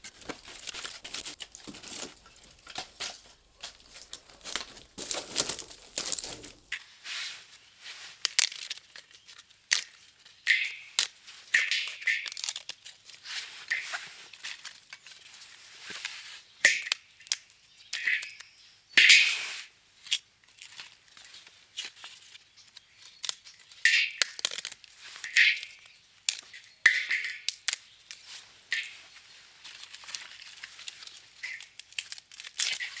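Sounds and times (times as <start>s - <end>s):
firewood cracking and splintering: 0.0s - 6.7s
wood fibres tearing: 0.0s - 6.7s.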